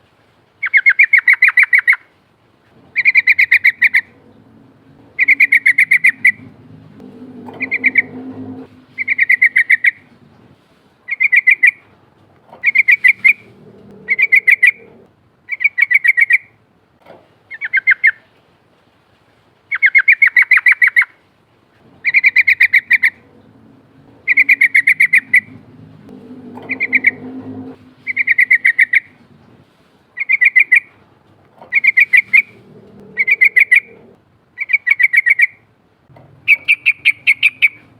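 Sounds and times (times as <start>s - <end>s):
bird singing bubbling phrases: 2.9s - 10.1s, 12.6s - 16.5s, 22.0s - 29.3s, 31.7s - 35.6s.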